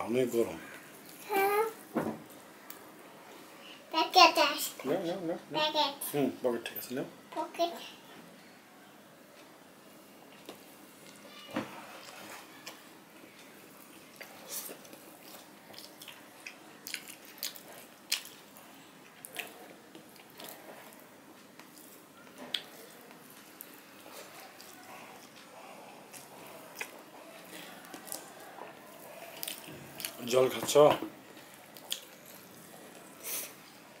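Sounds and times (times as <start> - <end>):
man chewing with mouth clicks: 12.0 - 30.2, 31.3 - 33.7.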